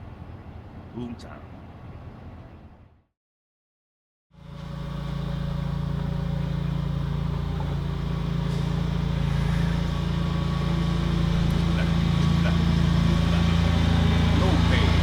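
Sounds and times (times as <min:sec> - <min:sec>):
engine idling: 0:04.4 - 0:15.0.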